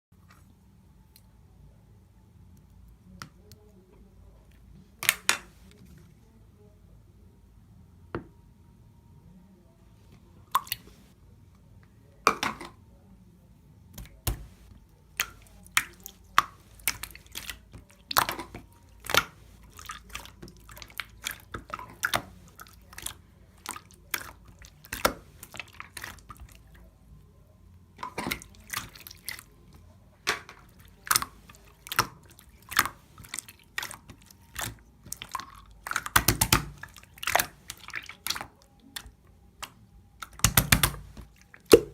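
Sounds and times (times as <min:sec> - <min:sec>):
wet clicks and pops: 0:05.0 - 0:05.5, 0:10.5 - 0:10.9, 0:13.9 - 0:19.3, 0:31.9 - 0:41.9.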